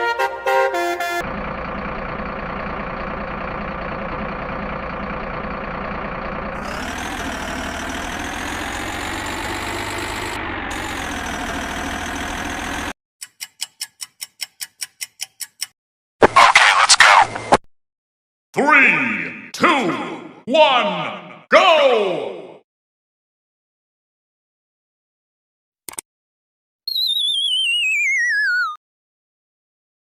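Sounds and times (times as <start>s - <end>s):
music: 0.0s - 1.2s
truck engine revving: 1.2s - 13.0s.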